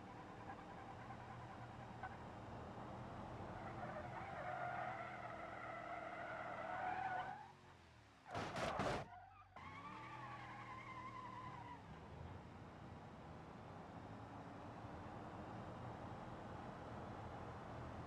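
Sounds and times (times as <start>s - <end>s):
car tyres spinning and squealing: 0.0s - 2.2s, 3.3s - 7.7s, 8.3s - 12.0s.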